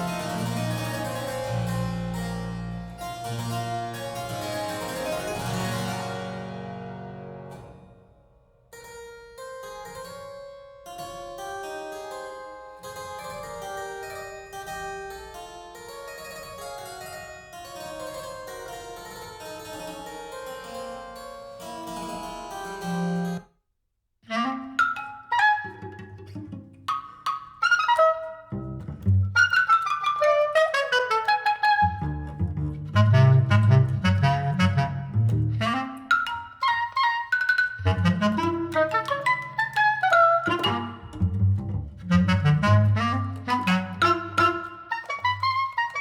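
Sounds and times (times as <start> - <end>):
keyboard piece: 0.0 - 8.1, 11.0 - 23.4, 31.2 - 46.0.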